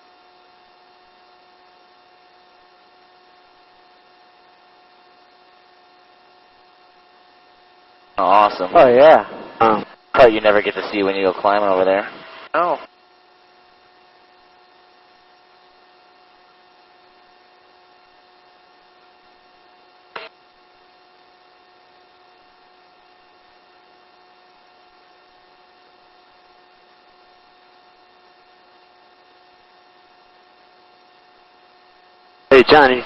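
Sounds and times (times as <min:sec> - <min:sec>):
low electrical hum: 0:00.0 - 0:33.0.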